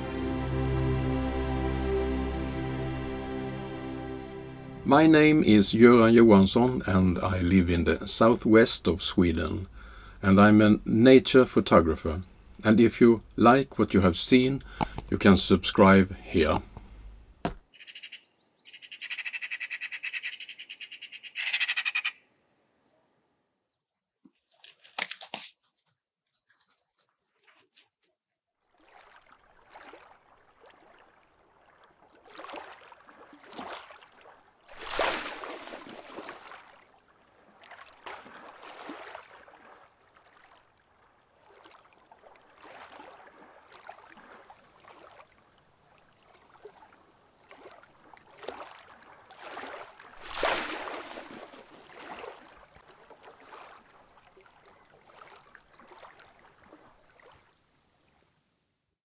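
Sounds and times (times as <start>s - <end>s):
water washing in swells: 28.7s - 57.6s.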